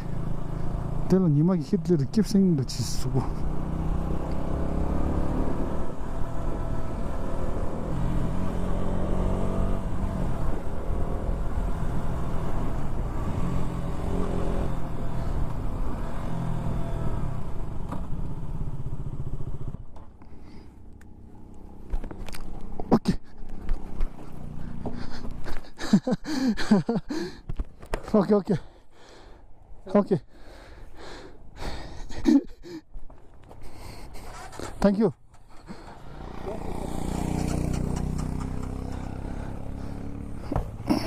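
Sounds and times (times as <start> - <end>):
motorcycle engine revving: 0.0 - 1.4, 3.0 - 19.9, 34.1 - 41.0.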